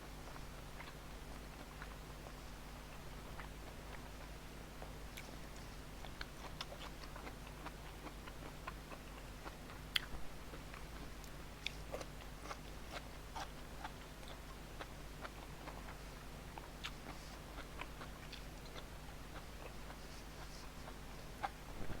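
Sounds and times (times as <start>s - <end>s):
person chewing food: 0.1s - 22.0s.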